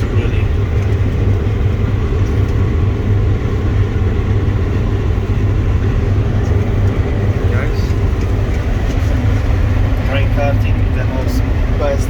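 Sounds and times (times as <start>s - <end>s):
combine harvester drone: 0.0s - 12.0s.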